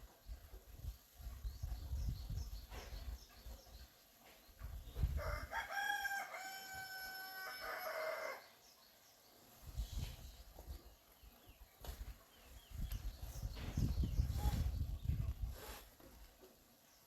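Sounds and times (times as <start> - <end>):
rooster crowing: 5.2 - 8.4.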